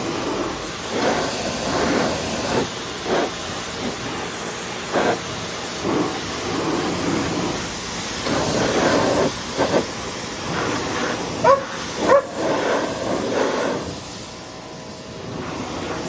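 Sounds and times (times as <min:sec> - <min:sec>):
pressure washer spraying water: 0:00.0 - 0:16.0
dog barking: 0:11.4 - 0:12.6.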